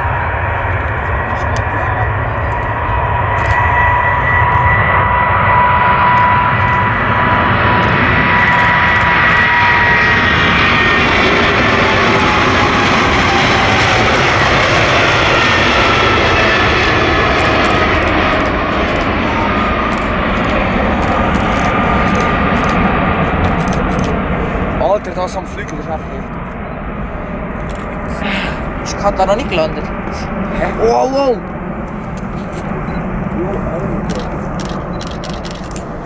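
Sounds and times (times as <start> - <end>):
jet engines passing by: 0.0 - 36.0.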